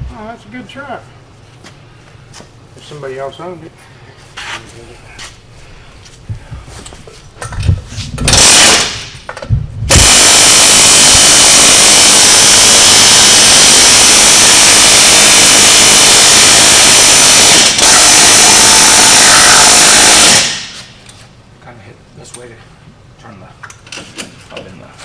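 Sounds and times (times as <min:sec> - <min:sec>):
power tool running: 0:08.3 - 0:09.2, 0:09.9 - 0:21.0.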